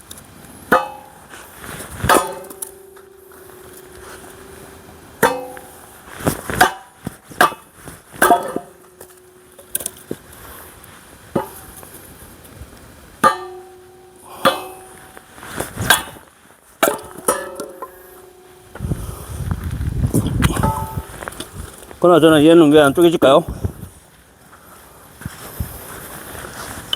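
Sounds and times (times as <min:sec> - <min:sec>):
axe striking a log: 0:00.7 - 0:09.8, 0:13.2 - 0:15.2
metallic ringing of axe: 0:02.1 - 0:06.9.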